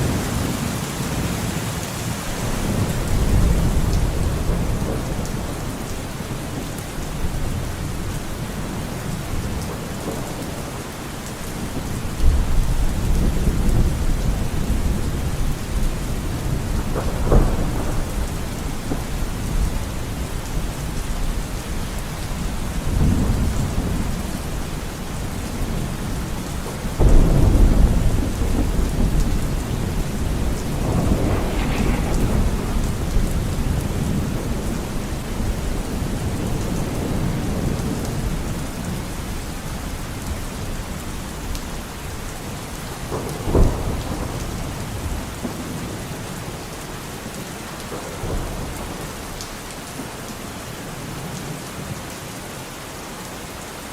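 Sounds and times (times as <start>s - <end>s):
steady rain in a forest: 0.0s - 53.9s
low rolls of thunder: 2.4s - 39.3s, 43.0s - 46.6s, 47.8s - 49.4s.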